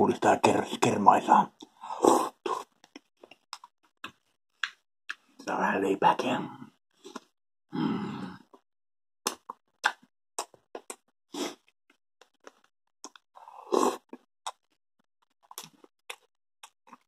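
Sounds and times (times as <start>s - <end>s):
wet chewing and lip smacks: 2.6s - 5.3s, 9.3s - 11.0s, 12.2s - 13.2s, 14.1s - 14.7s, 15.4s - 17.0s.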